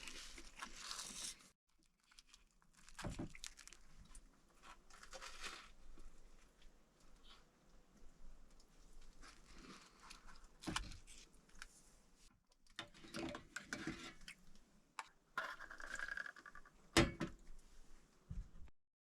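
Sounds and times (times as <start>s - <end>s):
small hard objects clicking and rattling: 15.4s - 16.7s.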